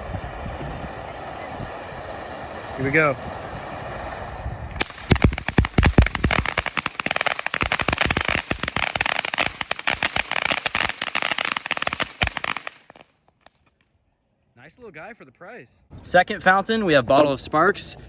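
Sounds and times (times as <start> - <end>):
firework bangs: 0.0 - 13.5
firework crackling pops: 0.0 - 13.7.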